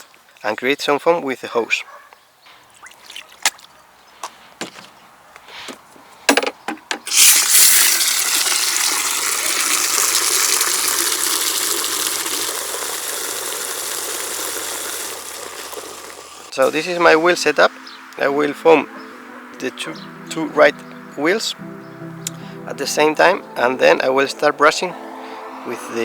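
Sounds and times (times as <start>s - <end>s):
handling clicks and knocks: 6.3s - 7.1s
water jet pouring into bucket: 7.1s - 16.6s.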